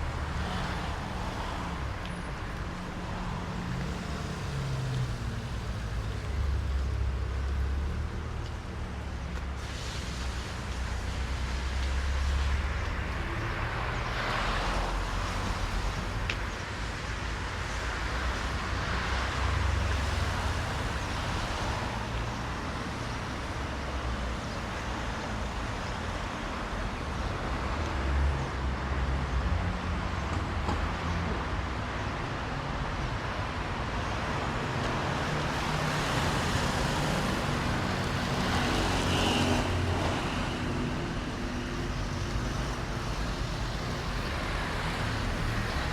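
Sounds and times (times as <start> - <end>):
cars passing: 0.0 - 45.9
low traffic rumble: 0.0 - 45.9
tyre hiss on wet road: 9.3 - 26.7, 35.2 - 41.4.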